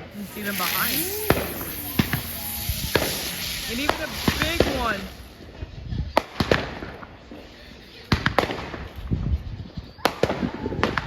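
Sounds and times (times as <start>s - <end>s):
fireworks exploding: 0.0s - 5.6s
firework pops and crackle: 0.0s - 7.1s, 8.1s - 9.2s.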